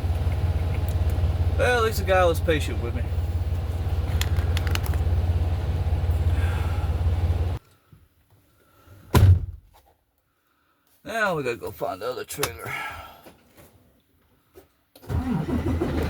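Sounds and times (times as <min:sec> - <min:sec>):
truck diesel engine rumbling: 0:00.0 - 0:07.6
loud thump: 0:09.1 - 0:09.7.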